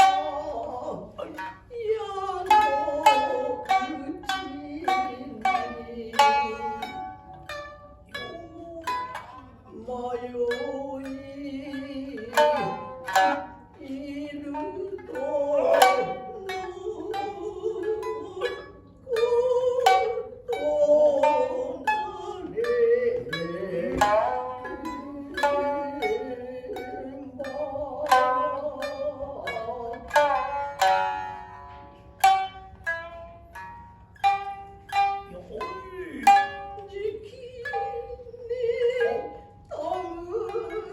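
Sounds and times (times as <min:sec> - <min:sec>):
chanted vocal line: 0:00.0 - 0:07.5, 0:08.1 - 0:31.0
shamisen plucked notes: 0:00.0 - 0:40.9.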